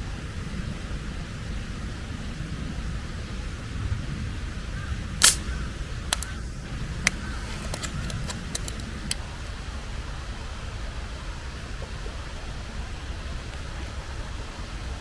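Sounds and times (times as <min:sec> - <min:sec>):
sharp clicks and knocks: 0:07.1 - 0:09.2.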